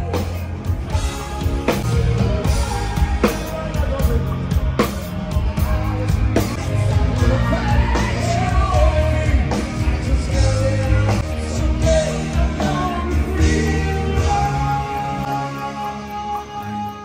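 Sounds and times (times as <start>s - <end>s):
drums: 0.0s - 17.0s
heavy bass: 0.0s - 17.0s
person singing: 0.0s - 17.0s.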